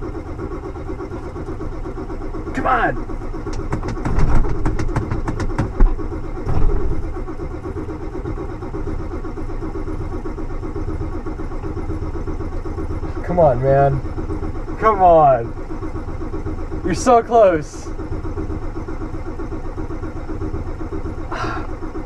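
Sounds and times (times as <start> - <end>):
engine sputtering: 0.0 - 22.0.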